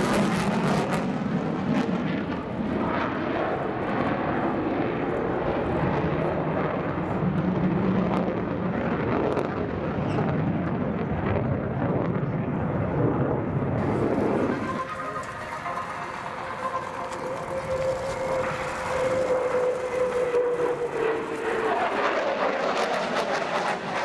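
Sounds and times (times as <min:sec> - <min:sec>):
jet engine rushing noise: 0:13.8 - 0:24.0.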